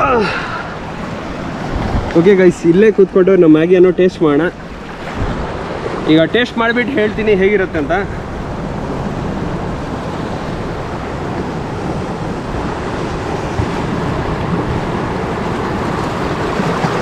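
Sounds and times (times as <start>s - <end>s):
sea surf: 0.0s - 17.0s
wind noise on microphone: 1.2s - 2.4s, 4.7s - 6.3s.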